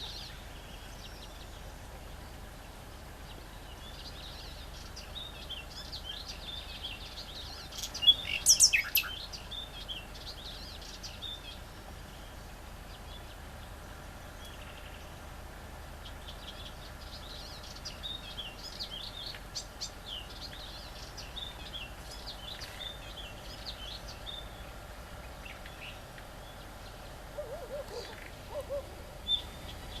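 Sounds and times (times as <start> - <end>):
warbler harsh chattering song: 3.2 - 13.7, 16.0 - 30.0.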